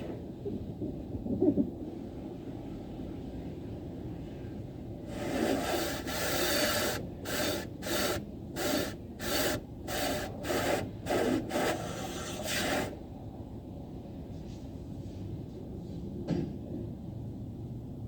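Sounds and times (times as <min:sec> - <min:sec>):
rhythmic rubbing strokes: 0:05.1 - 0:13.0.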